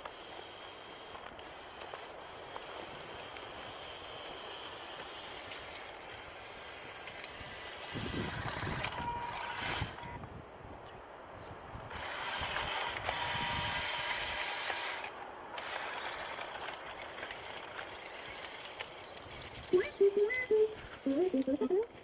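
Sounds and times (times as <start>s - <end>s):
toy truck electric motor whining: 0.0s - 10.1s, 11.9s - 20.0s
steady rustling noise: 0.0s - 22.0s.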